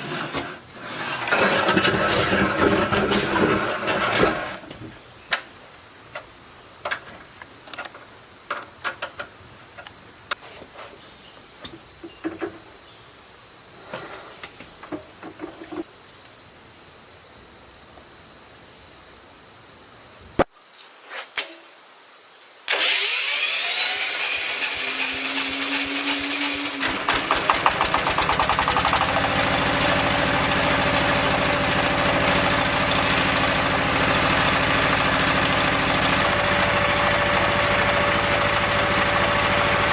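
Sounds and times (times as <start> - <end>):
engine starting and running: 0.0 - 4.8, 22.7 - 39.9.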